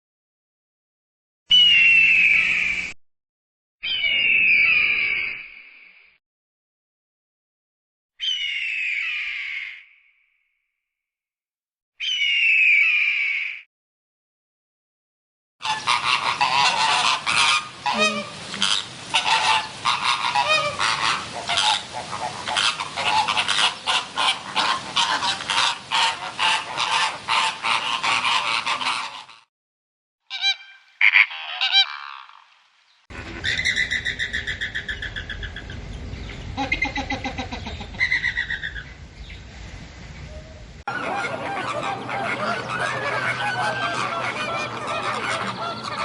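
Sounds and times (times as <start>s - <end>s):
flock of large birds honking: 15.6s - 29.5s, 30.3s - 32.4s, 40.9s - 46.0s
rapid repeated bird calls: 15.6s - 29.5s, 30.3s - 39.0s, 40.9s - 46.0s.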